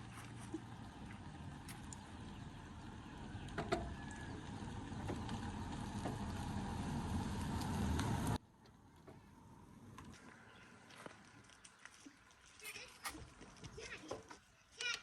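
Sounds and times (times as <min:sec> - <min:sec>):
vehicle engine rumbling: 0:00.0 - 0:11.3.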